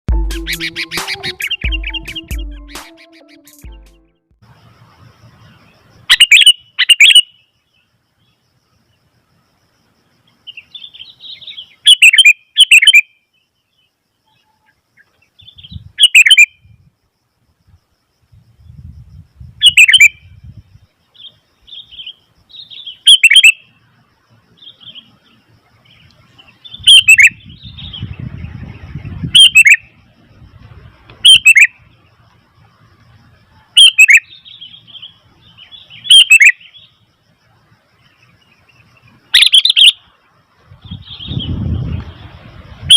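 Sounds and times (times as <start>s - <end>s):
bulbul calling sharply: 0.2s - 3.9s, 6.1s - 7.4s, 10.8s - 13.1s, 15.4s - 16.6s, 19.6s - 20.2s, 22.7s - 23.6s, 26.7s - 28.2s, 29.0s - 29.8s, 31.2s - 31.7s, 33.8s - 35.1s, 35.9s - 36.8s, 39.4s - 40.0s
soft chattering bird calls: 24.6s - 29.8s, 33.6s - 36.9s, 38.2s - 40.1s.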